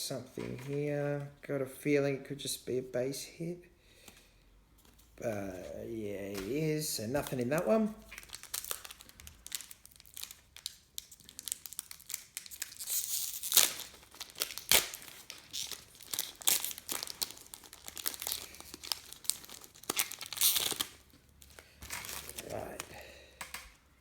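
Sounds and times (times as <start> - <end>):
wrapper tearing and crinkling: 6.3 - 23.6.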